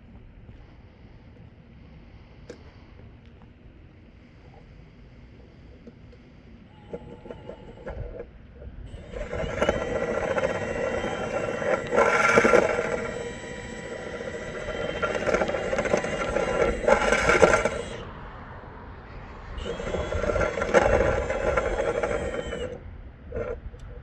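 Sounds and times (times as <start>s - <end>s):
vent cleaning tool whirring: 8.9s - 23.6s.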